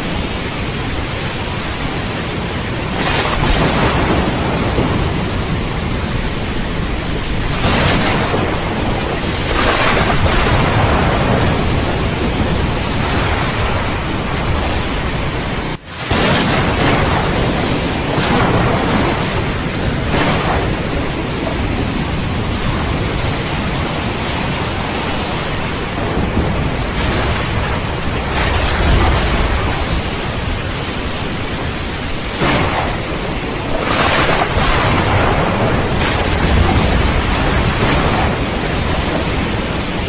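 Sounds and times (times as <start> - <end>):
heavy rain: 0.0 - 40.0
thunder rumbling: 0.0 - 40.0.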